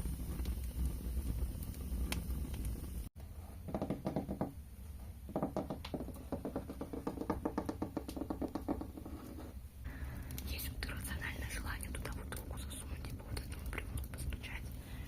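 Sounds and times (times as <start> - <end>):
light hollow tapping: 5.3 - 9.6.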